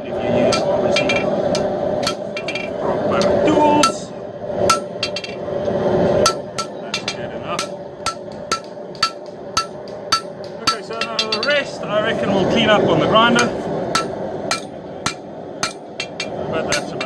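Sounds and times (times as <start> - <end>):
hammer striking steel on anvil: 0.4 - 4.0, 4.7 - 5.4, 6.2 - 11.7, 13.4 - 17.0.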